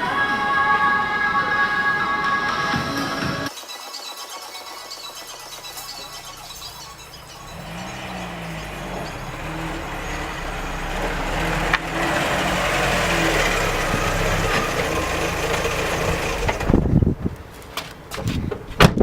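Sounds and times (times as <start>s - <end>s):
car engine and road noise: 4.8s - 19.0s.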